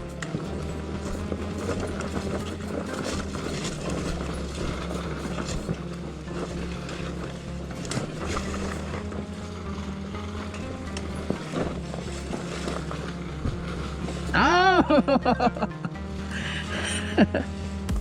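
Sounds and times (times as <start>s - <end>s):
knocks and scrapes: 0.0s - 9.3s
dirt bike engine at low revs: 0.0s - 18.0s.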